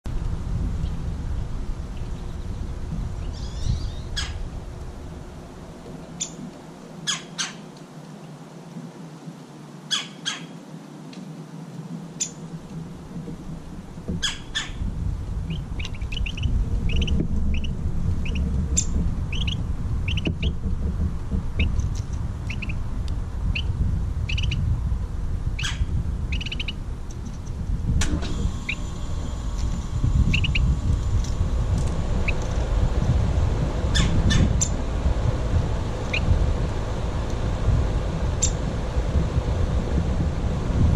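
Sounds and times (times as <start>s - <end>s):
steady low rumble: 0.0s - 8.1s, 11.6s - 40.9s
songbird chirping: 1.9s - 4.5s, 5.9s - 7.7s.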